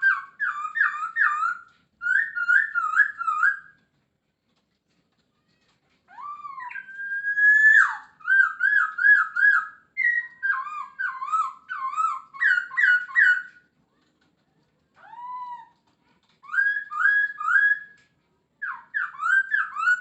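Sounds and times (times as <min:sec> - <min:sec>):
bird singing whistled notes: 0:00.0 - 0:03.8, 0:06.2 - 0:13.5, 0:16.4 - 0:18.0, 0:18.6 - 0:20.0.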